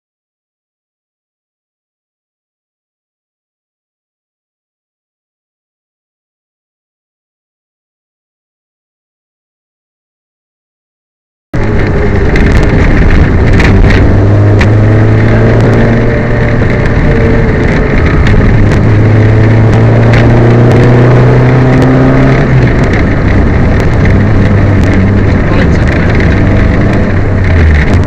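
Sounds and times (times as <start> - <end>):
rally car engine under load: 11.6 - 28.0.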